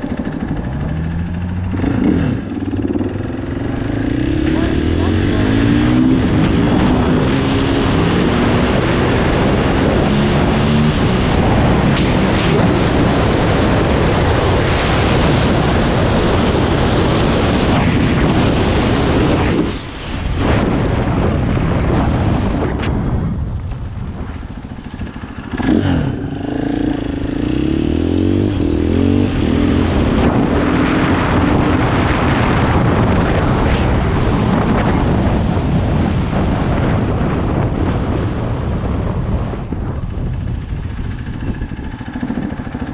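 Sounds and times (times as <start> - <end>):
dirt bike engine revving: 0.0 - 19.8, 24.4 - 35.2, 40.4 - 42.9
wind rushing on microphone: 0.0 - 42.9.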